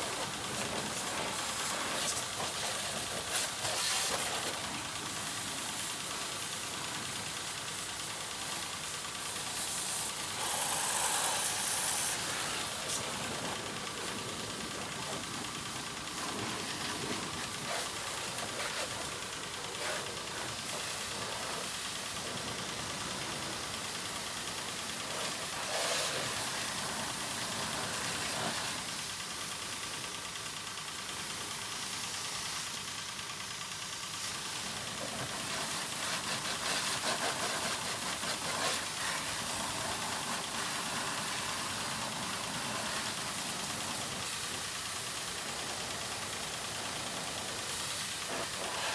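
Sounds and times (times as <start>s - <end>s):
water spray hiss: 0.0s - 30.1s, 31.2s - 33.0s, 33.6s - 48.9s
motor running steadily: 0.0s - 48.9s.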